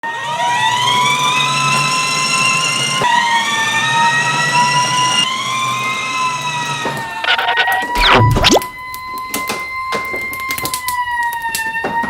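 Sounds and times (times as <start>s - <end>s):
fire alarm siren wailing: 0.0s - 12.0s
steady high alarm tone: 6.8s - 12.0s.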